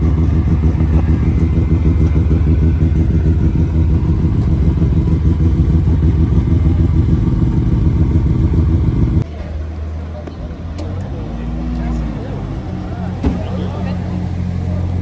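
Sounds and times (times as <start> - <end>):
car engine running loud: 0.0 - 9.3, 9.9 - 15.0.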